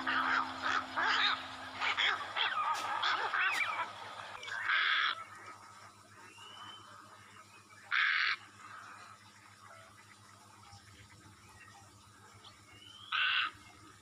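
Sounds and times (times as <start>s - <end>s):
birds honking calls: 0.0s - 7.2s, 13.0s - 13.7s.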